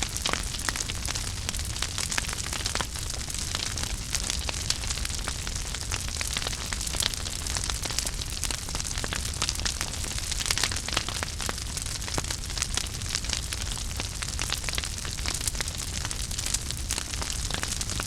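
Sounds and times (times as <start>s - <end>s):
fireplace fire crackling: 0.0s - 18.0s.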